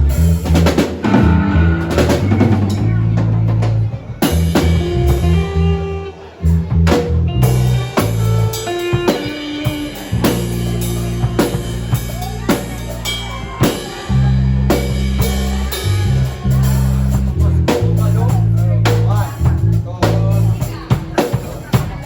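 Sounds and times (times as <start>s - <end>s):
bass drum and snare hits: 0.0s - 5.5s, 6.6s - 8.4s
held bass line: 0.0s - 22.0s.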